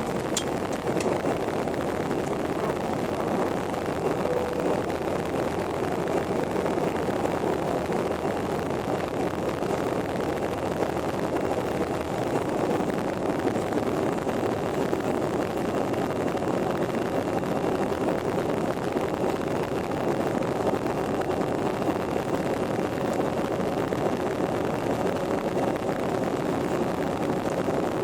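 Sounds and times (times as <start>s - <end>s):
faint steady tone: 0.0s - 8.9s
jet airliner engines and airflow: 0.0s - 28.0s.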